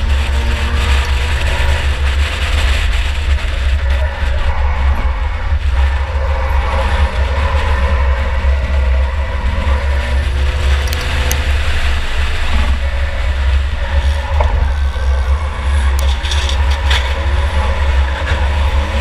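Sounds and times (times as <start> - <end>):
race car engine rumbling: 0.0 - 19.0
road and drivetrain noise: 0.0 - 19.0.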